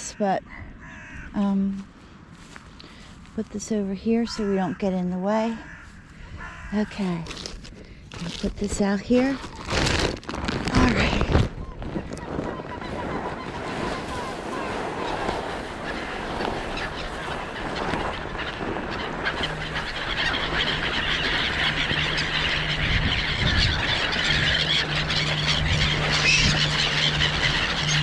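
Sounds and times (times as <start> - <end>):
chorus of birds calling: 4.0 - 28.0
low mechanical hum: 15.8 - 28.0.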